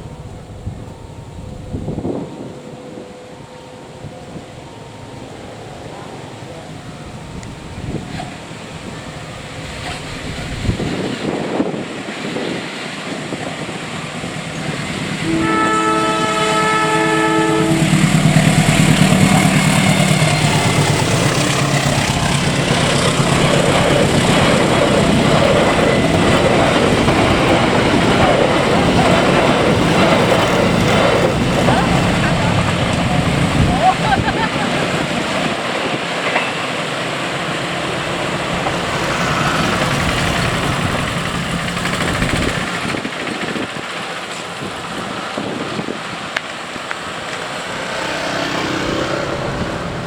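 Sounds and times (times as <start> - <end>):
train wheels rumbling on rails: 4.2 - 50.0
train horn chord: 15.2 - 19.6.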